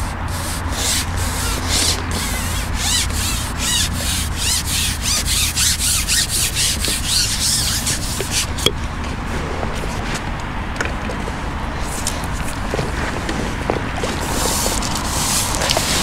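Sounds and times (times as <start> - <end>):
rhythmic rubbing strokes: 0.0 - 8.8
steady low hum: 0.0 - 14.8.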